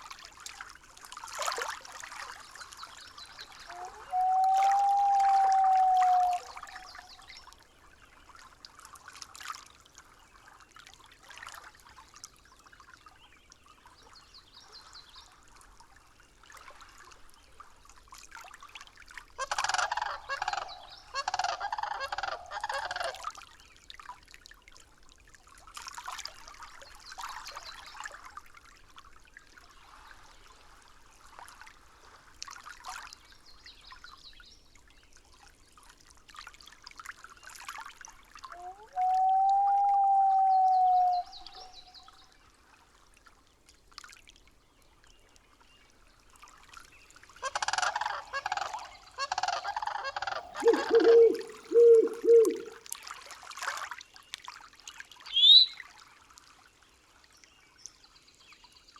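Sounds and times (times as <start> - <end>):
faint trickling stream: 0.0 - 58.9
bird calls: 3.6 - 7.3, 19.4 - 23.2, 38.6 - 42.2, 47.4 - 52.8, 55.3 - 55.8
whistle-like tone: 3.7 - 6.6, 38.6 - 41.4, 55.4 - 55.8.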